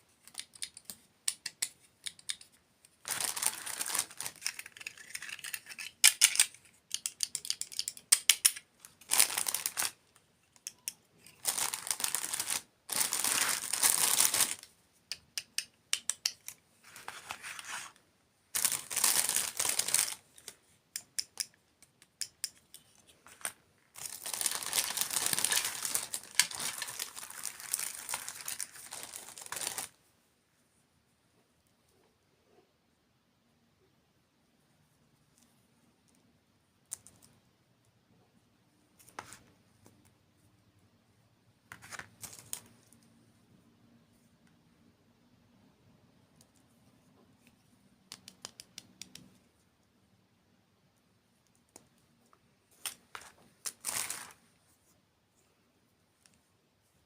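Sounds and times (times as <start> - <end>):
crinkling of food packaging: 3.0 - 6.5, 8.8 - 10.0, 11.3 - 14.7, 18.6 - 20.2, 23.4 - 30.0, 52.8 - 54.4.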